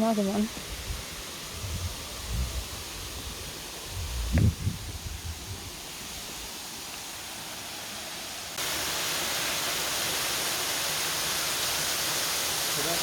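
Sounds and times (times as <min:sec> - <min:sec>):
waterfall rushing: 0:05.5 - 0:13.0.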